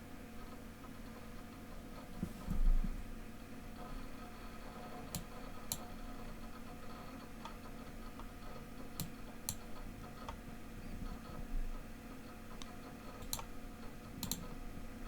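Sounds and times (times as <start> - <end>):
low steady hum: 0.0 - 15.0
sharp mouse clicks: 5.1 - 5.9, 9.0 - 10.4, 12.6 - 13.5, 14.2 - 14.5.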